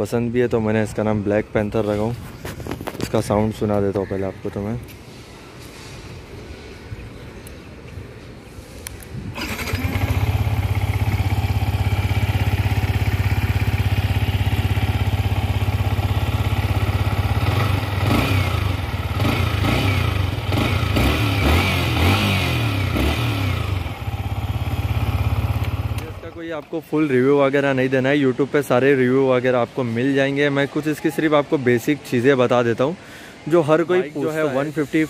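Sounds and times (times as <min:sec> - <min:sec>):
motorcycle engine starting: 0:09.3 - 0:26.4
motorcycle engine idling: 0:09.4 - 0:26.4
motorcycle engine revving: 0:09.4 - 0:26.4.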